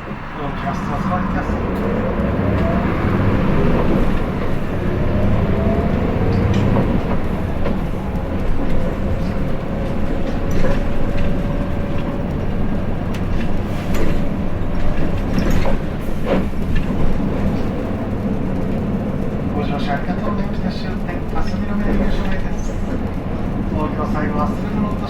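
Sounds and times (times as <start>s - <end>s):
bus diesel engine rumble: 0.0s - 25.0s
drivetrain whine: 0.0s - 25.0s
body knocks and rattles: 6.2s - 18.9s.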